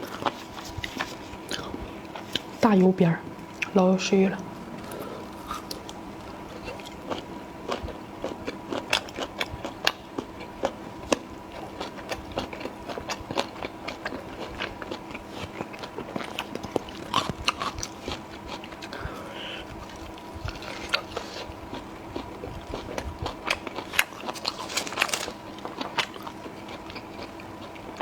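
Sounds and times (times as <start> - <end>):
faint steady hum: 0.0 - 28.0
chewing and biting meat: 4.8 - 28.0.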